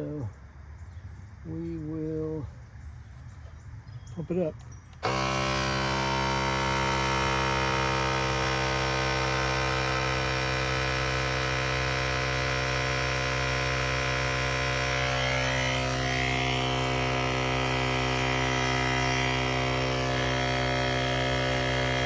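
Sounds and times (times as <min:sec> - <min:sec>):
air compressor humming: 0:05.0 - 0:22.0.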